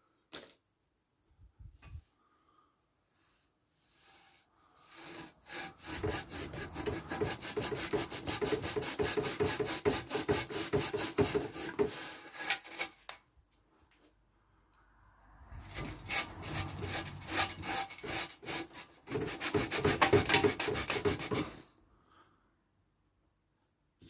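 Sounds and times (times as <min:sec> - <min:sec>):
scrubbing rust off metal: 0:04.1 - 0:13.1, 0:15.6 - 0:21.6.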